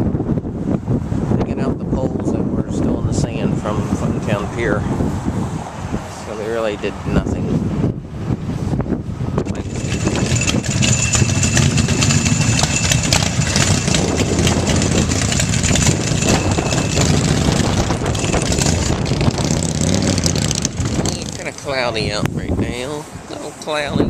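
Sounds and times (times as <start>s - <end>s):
machine engine running: 9.6s - 21.5s.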